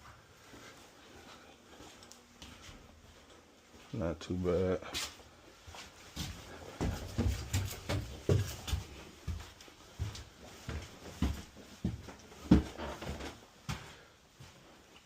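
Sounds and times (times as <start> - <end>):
footsteps thumping: 6.2 - 13.9.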